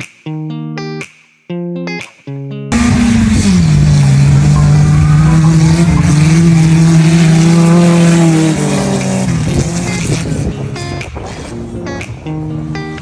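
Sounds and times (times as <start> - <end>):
car engine at high revs: 2.7 - 11.7.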